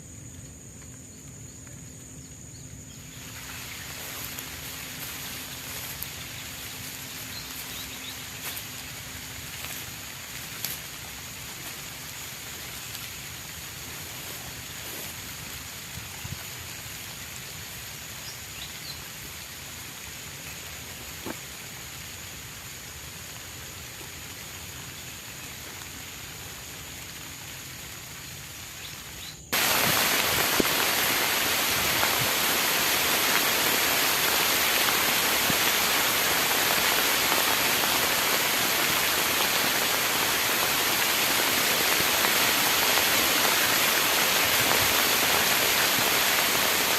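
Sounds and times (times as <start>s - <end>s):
rain falling: 3.0s - 46.9s
raindrops ticking close by: 3.2s - 28.8s, 29.6s - 46.9s.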